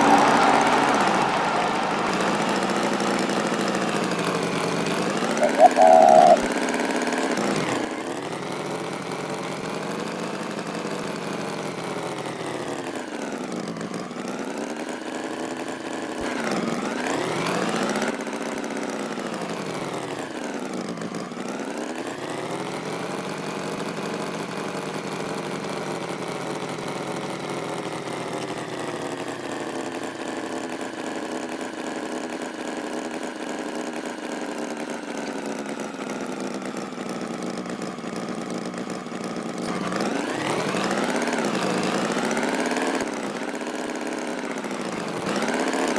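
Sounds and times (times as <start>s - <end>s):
tractor engine running: 0.0s - 14.6s.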